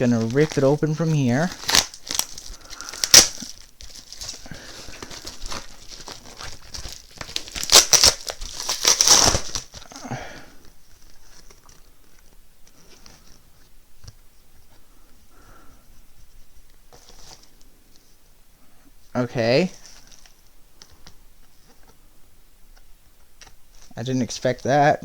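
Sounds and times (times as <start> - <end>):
package handling: 0.0 - 14.8
packaging ripped open: 1.4 - 10.0.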